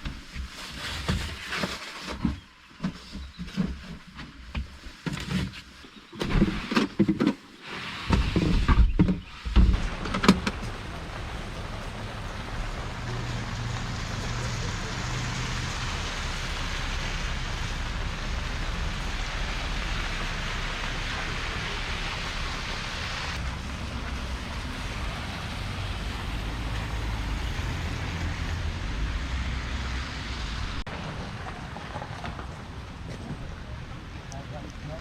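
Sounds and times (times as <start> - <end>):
low vehicle rumble: 8.1 - 35.0
rain hissing: 9.3 - 31.4.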